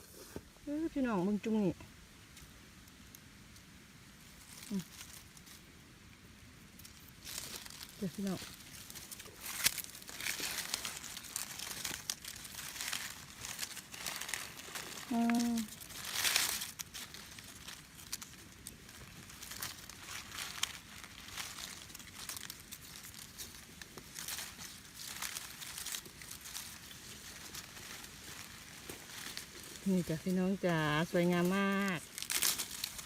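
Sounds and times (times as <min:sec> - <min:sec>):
dry leaves crackling and rustling: 0:00.0 - 0:33.0
person humming: 0:15.1 - 0:15.7.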